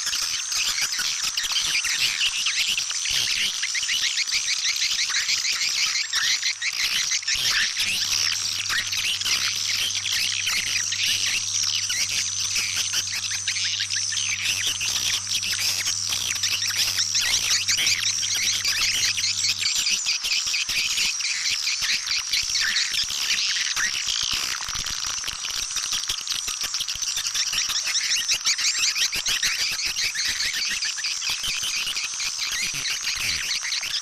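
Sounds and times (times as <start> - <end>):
swiftlets twittering: 0.1 - 24.1.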